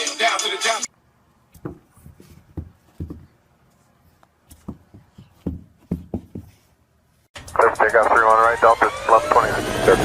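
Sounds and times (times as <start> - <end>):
soft thumps and knocks: 1.5 - 3.4, 4.4 - 6.7.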